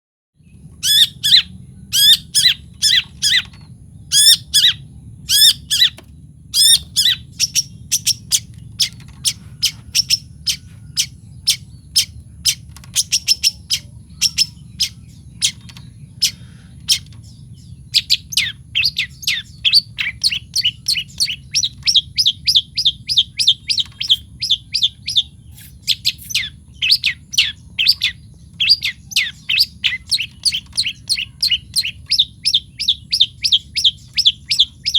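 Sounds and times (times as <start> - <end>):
steady low hum: 0.4 - 34.9
bird calling: 0.8 - 34.9.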